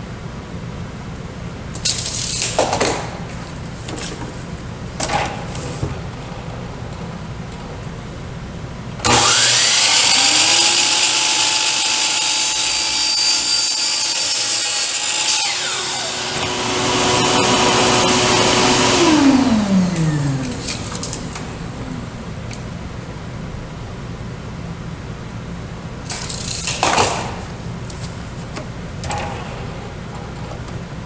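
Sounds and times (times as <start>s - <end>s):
table saw cutting plastic: 9.0s - 22.6s.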